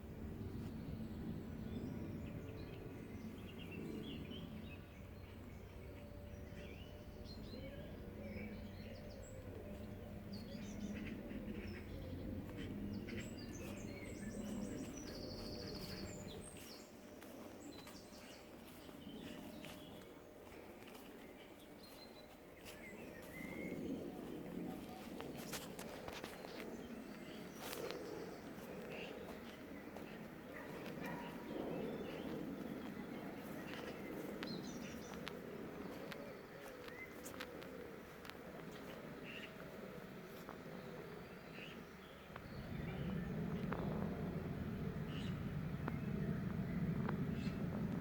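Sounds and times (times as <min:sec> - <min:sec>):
small birds chirping: 0:00.0 - 0:48.0
steady low rumble: 0:00.0 - 0:48.0.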